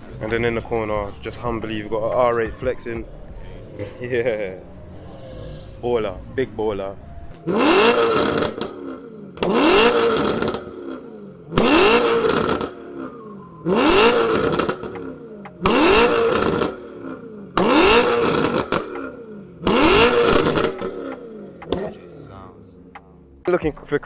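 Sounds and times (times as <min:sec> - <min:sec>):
car engine revving hard: 0:03.0 - 0:21.9.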